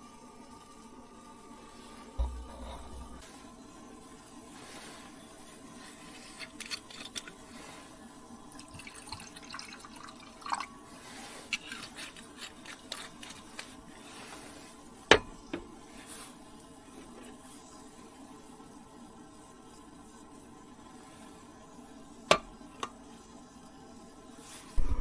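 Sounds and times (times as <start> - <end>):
low steady hum: 0.1 - 11.2, 24.8 - 25.0.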